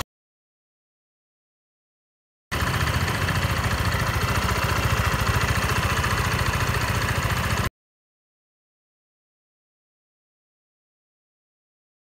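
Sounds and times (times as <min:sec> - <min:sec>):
abnormal engine noise: 0:02.5 - 0:07.7
scooter engine idling: 0:02.5 - 0:07.7.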